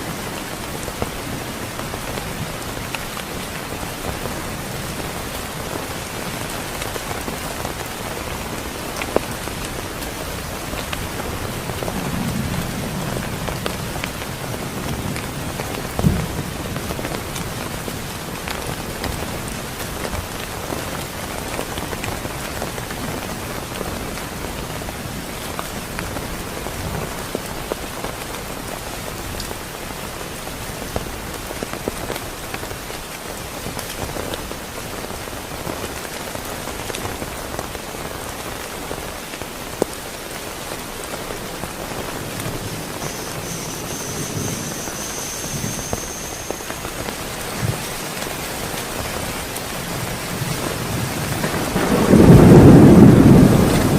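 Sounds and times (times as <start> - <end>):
heavy rain falling: 0.0 - 53.9
thunder rumbling: 41.9 - 48.0, 49.9 - 53.9
faint high whistle: 42.9 - 47.2.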